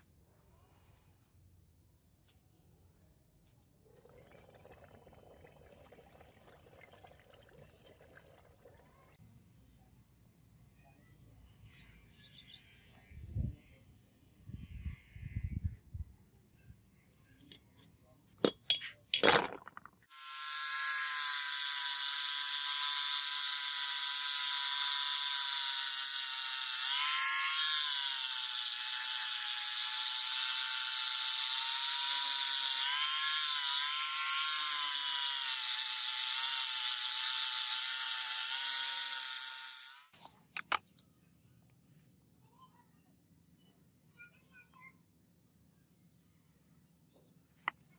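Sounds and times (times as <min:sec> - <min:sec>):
electric power tool whining: 0:20.1 - 0:40.2.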